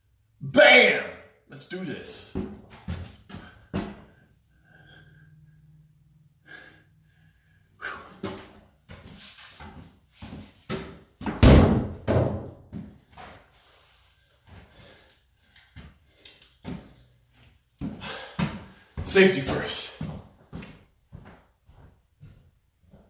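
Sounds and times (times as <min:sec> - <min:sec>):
knocks and heavy thuds: 0:11.2 - 0:12.8
loud slam: 0:11.4 - 0:12.5.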